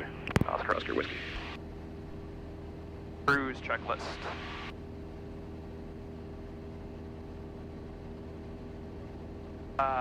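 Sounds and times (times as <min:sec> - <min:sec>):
aircraft engine and propeller drone: 0:00.0 - 0:10.0.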